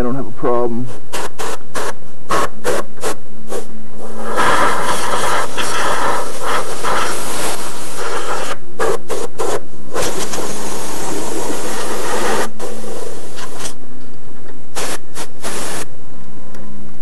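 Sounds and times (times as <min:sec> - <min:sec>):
compressed air hissing from nozzle: 0:00.9 - 0:13.8, 0:14.7 - 0:15.9.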